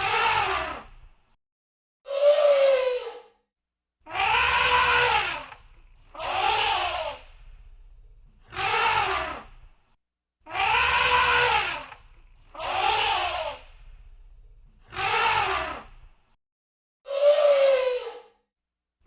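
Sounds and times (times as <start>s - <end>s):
elephant trumpeting: 4.1s - 7.2s, 8.5s - 9.5s, 10.5s - 13.6s.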